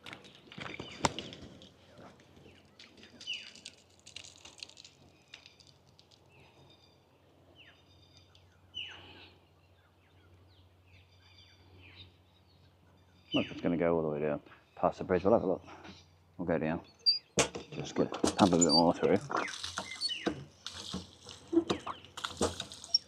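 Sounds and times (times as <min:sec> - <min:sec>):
birds calling downward notes: 0:06.3 - 0:23.0
high bird chirps: 0:16.8 - 0:17.4, 0:18.5 - 0:20.8.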